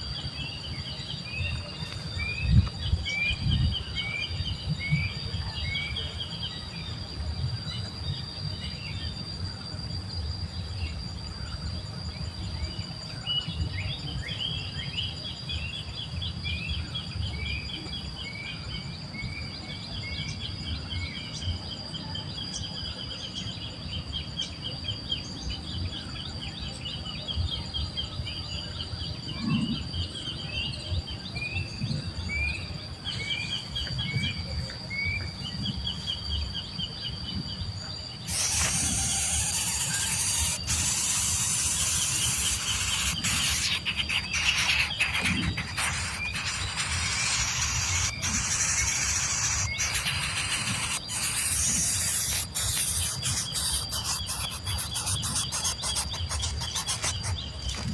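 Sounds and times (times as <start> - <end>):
high insect drone: 0.0 - 57.9
bird chirps: 38.2 - 57.9.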